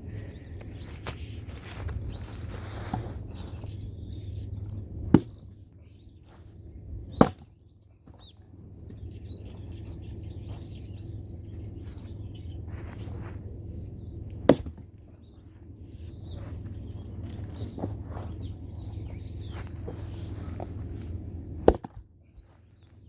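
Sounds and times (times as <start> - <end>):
axe chopping firewood: 4.4 - 5.6, 6.9 - 8.2, 14.3 - 14.9, 21.5 - 22.1.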